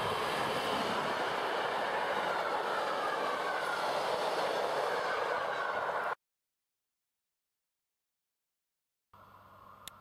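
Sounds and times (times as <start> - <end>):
train wheels rumbling on rails: 0.0 - 6.2.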